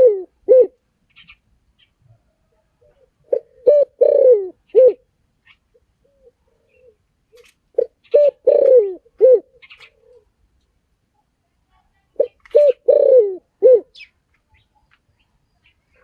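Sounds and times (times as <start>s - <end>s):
dove cooing: 0.0s - 1.3s, 2.1s - 5.1s, 6.0s - 7.0s, 7.8s - 10.3s, 12.2s - 14.1s.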